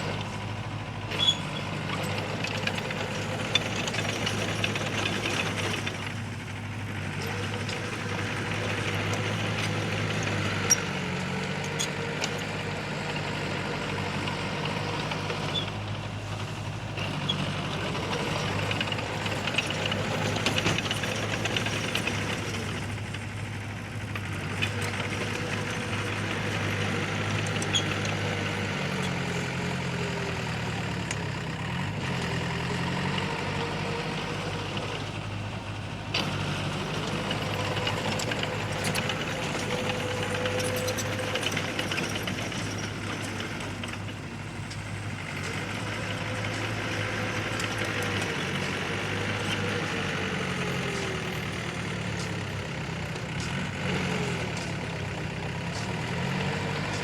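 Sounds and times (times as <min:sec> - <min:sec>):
diesel engine running: 0:00.0 - 0:57.0
faint clanks: 0:36.2 - 0:57.0.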